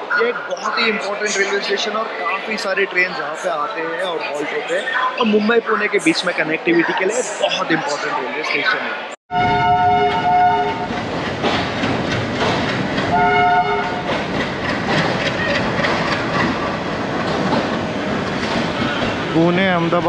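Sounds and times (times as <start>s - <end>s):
locomotive horn: 9.3s - 10.9s, 13.1s - 14.1s
train rumble and wheel clatter: 9.4s - 20.0s.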